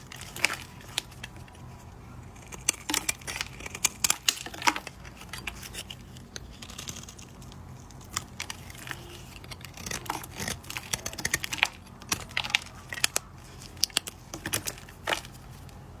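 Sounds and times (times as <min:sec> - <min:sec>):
knife scraping bar soap: 0:00.0 - 0:16.0.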